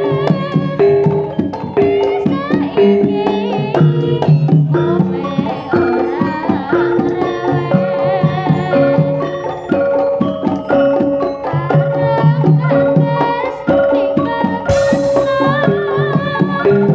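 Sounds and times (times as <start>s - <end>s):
hand drum strokes: 14.7s - 15.7s.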